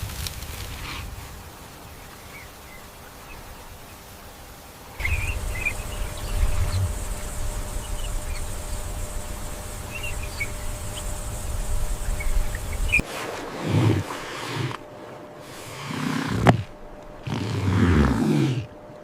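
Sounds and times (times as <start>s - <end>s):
thin high insect hum: 2.4s - 19.0s
high bird chirps: 5.0s - 13.0s
low rumble: 5.0s - 13.0s.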